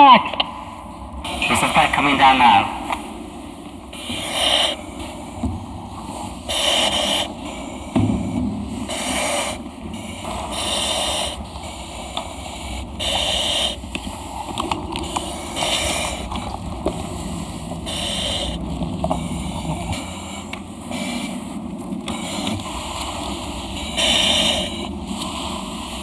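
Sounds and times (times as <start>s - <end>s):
breathing valve hiss: 3.8s - 5.4s, 6.0s - 26.0s.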